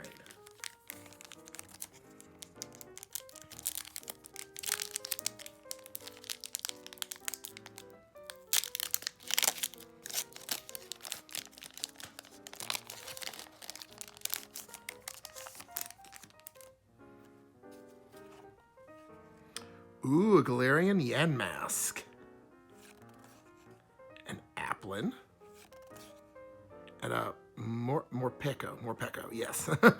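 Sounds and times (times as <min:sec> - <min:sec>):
wrapper crinkling and tearing: 0:00.0 - 0:16.7
background music: 0:00.0 - 0:29.9.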